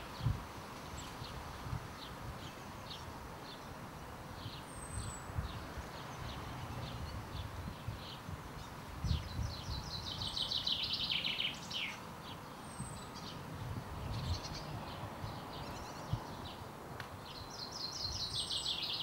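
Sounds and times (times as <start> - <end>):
songbird trilling and chirping: 4.4 - 13.4, 14.0 - 19.0.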